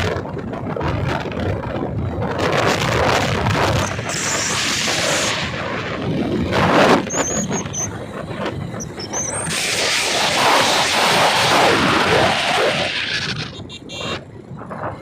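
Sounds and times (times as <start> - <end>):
bike vehicle noise: 0.0 - 15.0
rushing wind: 0.0 - 15.0
high chirps or squeals: 7.1 - 8.0, 8.8 - 9.6.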